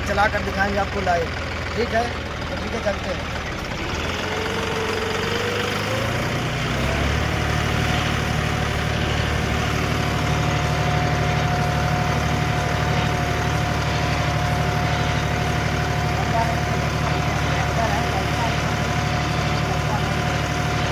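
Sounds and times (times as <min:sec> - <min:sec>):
tractor diesel engine: 0:00.0 - 0:20.9.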